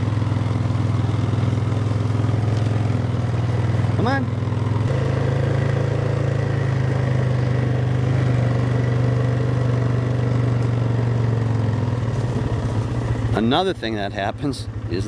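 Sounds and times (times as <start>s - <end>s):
four-wheeler engine running: 0.0s - 15.0s.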